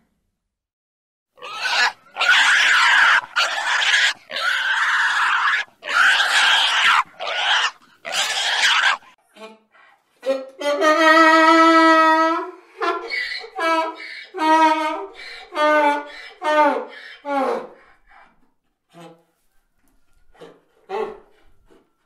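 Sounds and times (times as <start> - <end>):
donkey braying: 1.4 - 9.2, 10.8 - 18.0
pig squealing: 1.4 - 9.2, 11.0 - 17.8.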